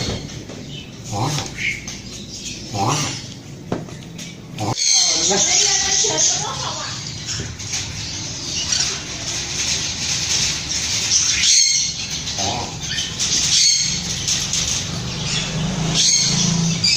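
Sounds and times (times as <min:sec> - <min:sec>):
scraping and rustling: 0:06.2 - 0:15.0.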